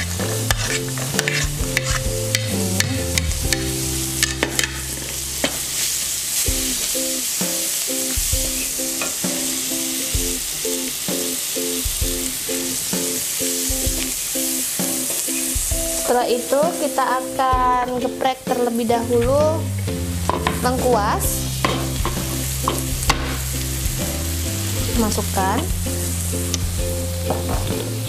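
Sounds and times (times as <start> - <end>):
wooden spatula scraping wok: 0.0 - 10.4
shallots sizzling in hot oil: 0.0 - 28.0.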